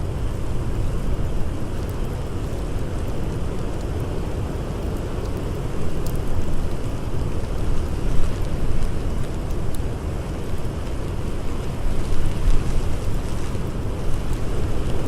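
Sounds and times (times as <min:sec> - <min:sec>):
faint campfire crackles: 0:00.0 - 0:15.0.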